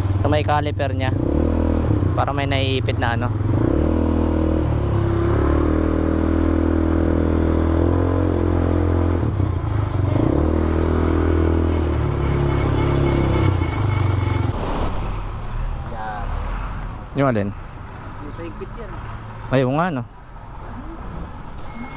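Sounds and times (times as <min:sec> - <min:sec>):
quad bike engine running: 0:00.0 - 0:14.6.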